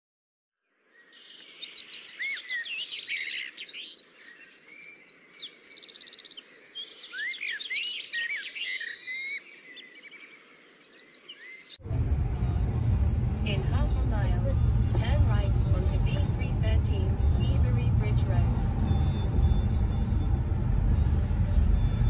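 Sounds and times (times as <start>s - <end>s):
songbirds singing and calling: 0.7s - 11.8s.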